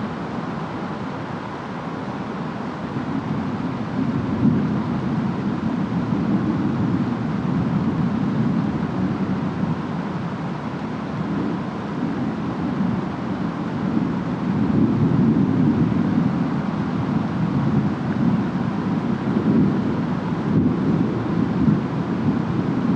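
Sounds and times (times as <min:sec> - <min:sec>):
wind: 0:00.0 - 0:22.9
rain: 0:00.1 - 0:22.9.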